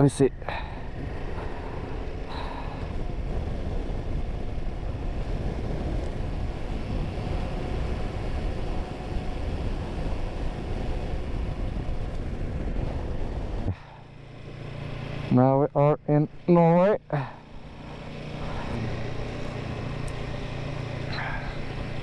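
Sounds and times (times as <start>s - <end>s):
wind noise: 0.0s - 14.0s
motorcycle engine running: 0.0s - 22.0s.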